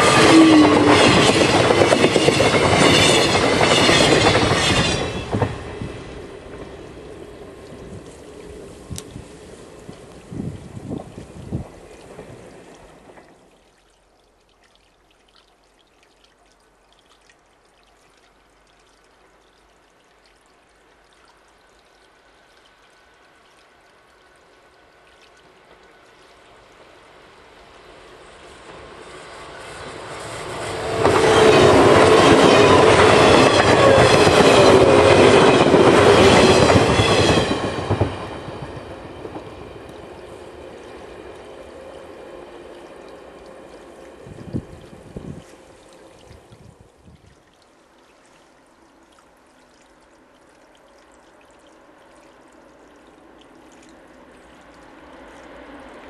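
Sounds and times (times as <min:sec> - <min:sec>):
wheels clacking over rail joints: 0:00.0 - 0:08.2, 0:29.7 - 0:43.7
train wheel-on-rail noise: 0:00.0 - 0:13.3, 0:25.5 - 0:46.5.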